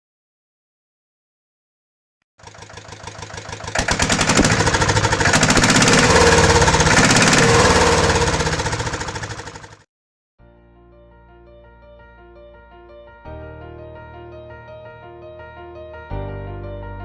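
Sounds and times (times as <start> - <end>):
tractor engine starting and knocking: 2.4 - 9.9.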